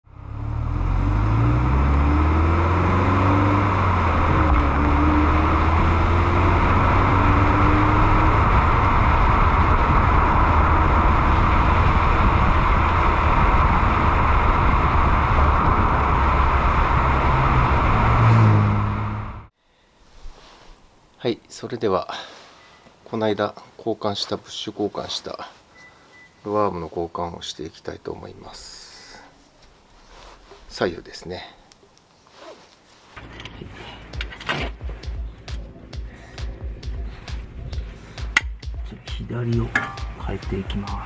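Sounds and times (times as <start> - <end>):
car engine running: 0.0 - 19.5
road and wind noise: 0.0 - 19.5.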